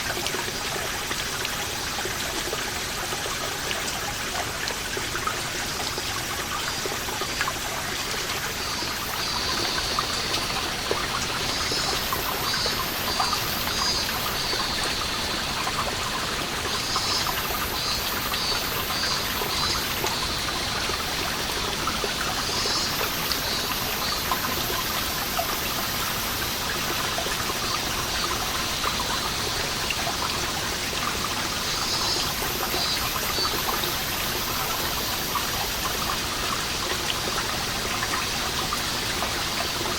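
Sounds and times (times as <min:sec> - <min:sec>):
water dripping: 0:00.0 - 0:39.9
water trickling: 0:00.0 - 0:39.9
cicadas calling: 0:08.5 - 0:30.6, 0:31.5 - 0:36.9.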